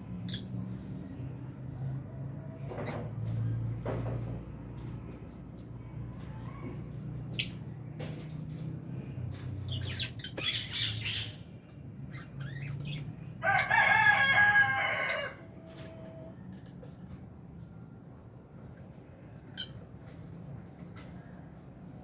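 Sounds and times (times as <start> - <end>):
lovebirds chirping: 9.6 - 13.7.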